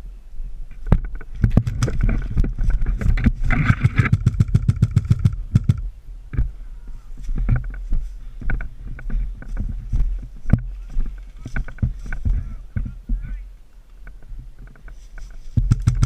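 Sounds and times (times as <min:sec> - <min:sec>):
airsoft gun firing bursts: 0:03.6 - 0:05.8, 0:15.6 - 0:16.0.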